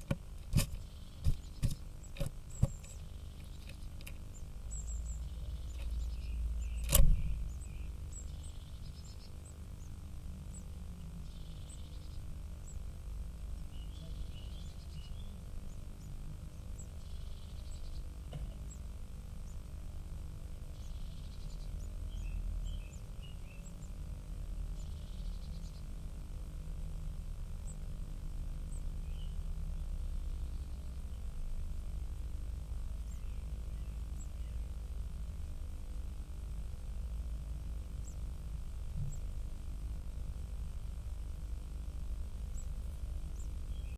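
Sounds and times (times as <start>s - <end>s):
faint high bird calls: 20.8s - 24.0s.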